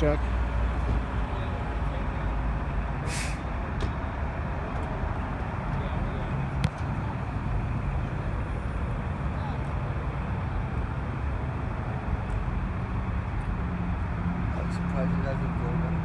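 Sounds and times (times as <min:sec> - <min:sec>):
truck engine rumbling: 0:00.0 - 0:16.0
air brake hiss: 0:03.0 - 0:03.5.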